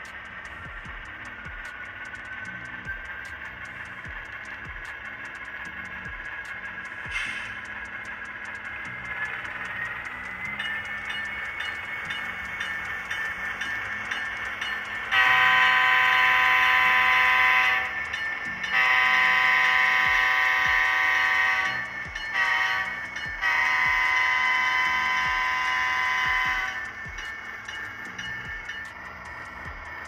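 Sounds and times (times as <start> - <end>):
model locomotive horn blasts: 15.1 - 18.0, 18.6 - 27.0.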